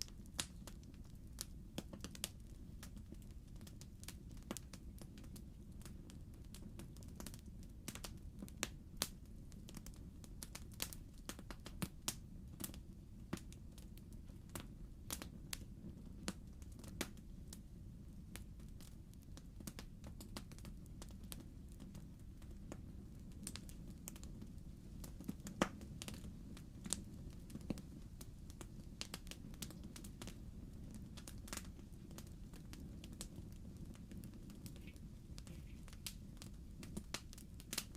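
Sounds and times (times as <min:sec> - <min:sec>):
fire crackling and popping: 0:00.0 - 0:37.9
quiet low rumble: 0:20.9 - 0:37.9.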